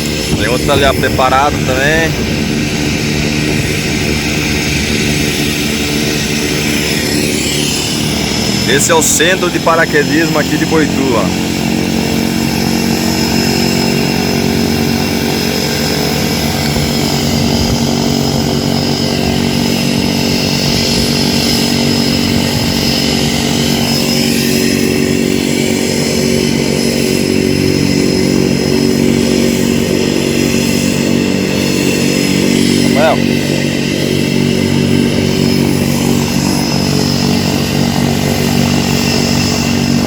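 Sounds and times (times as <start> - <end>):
airplane engine drone: 0.0 - 40.0
high whine: 0.0 - 40.0.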